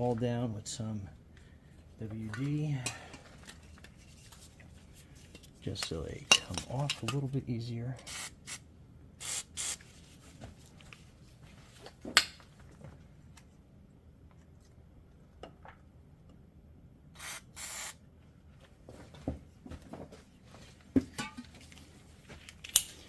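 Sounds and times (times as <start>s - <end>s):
aerosol can spraying: 9.2s - 9.8s, 17.2s - 18.0s.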